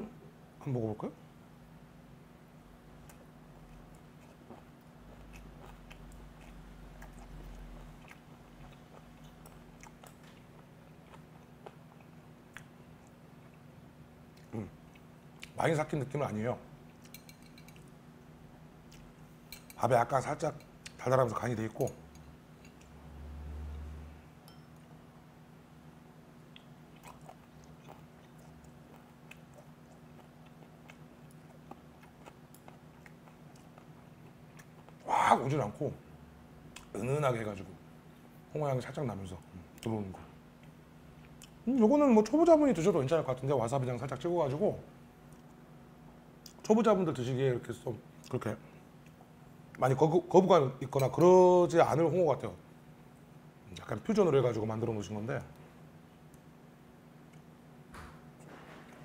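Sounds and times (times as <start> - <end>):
steady low hum: 0.0 - 59.0
close chewing: 3.1 - 13.6, 26.6 - 35.1
wet mouth clicks of chewing: 26.5 - 35.0.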